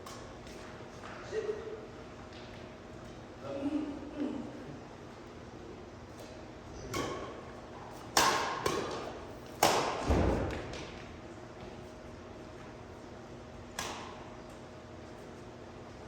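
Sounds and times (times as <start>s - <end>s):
rackets hitting shuttlecock: 0.0s - 0.7s, 6.2s - 11.0s, 13.7s - 14.6s.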